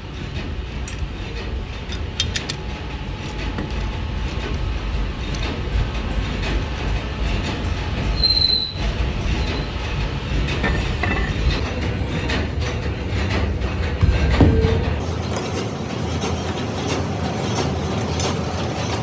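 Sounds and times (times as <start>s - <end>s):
heavy machinery rumble: 0.0s - 19.0s
metal squealing: 8.0s - 19.0s
metallic clanks: 8.8s - 19.0s.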